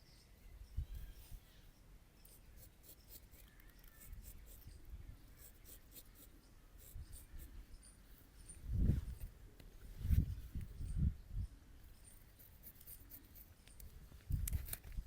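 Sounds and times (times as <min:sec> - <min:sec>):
razor scraping over stubble: 0:02.2 - 0:09.3, 0:12.0 - 0:15.0.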